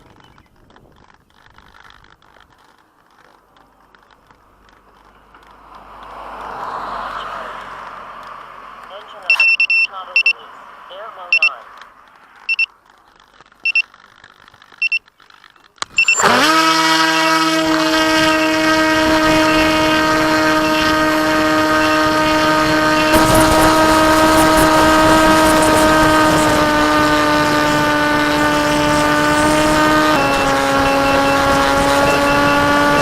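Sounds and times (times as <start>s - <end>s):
high electronic beeps: 9.2s - 10.5s, 11.2s - 11.6s, 12.4s - 12.7s, 13.6s - 13.8s, 14.8s - 15.0s, 15.9s - 16.3s
electric motor and propeller whine: 15.7s - 33.0s.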